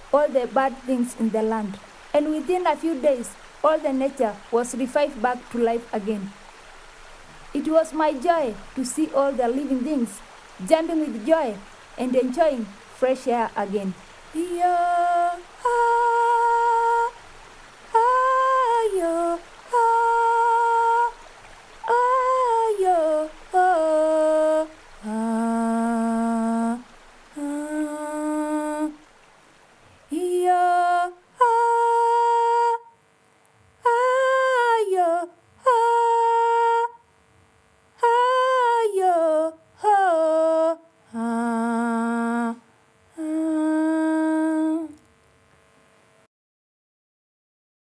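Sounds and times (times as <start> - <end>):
woman humming a slow tune: 14.4 - 17.2, 18.0 - 29.1, 30.1 - 33.0, 33.8 - 37.0, 38.0 - 45.0.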